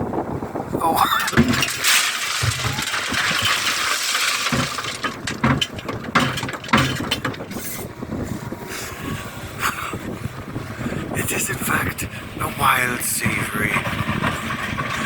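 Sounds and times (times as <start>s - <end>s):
excavator running: 0.5s - 15.0s
knocks and metallic clanks: 1.1s - 7.9s.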